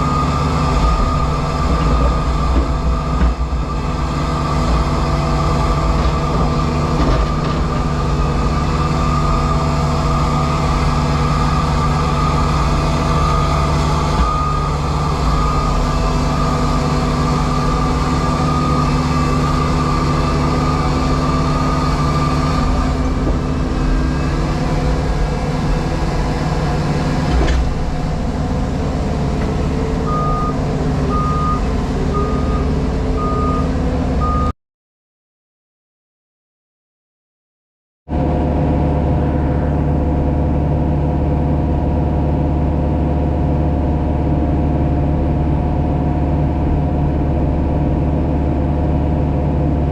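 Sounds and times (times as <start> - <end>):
reversing alarm beeping: 13.1 - 19.9, 30.0 - 34.5.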